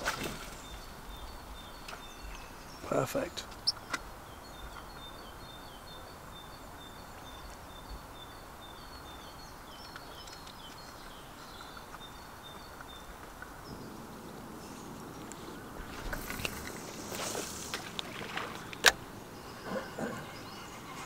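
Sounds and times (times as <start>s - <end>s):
faint outdoor hiss: 0.0s - 21.0s.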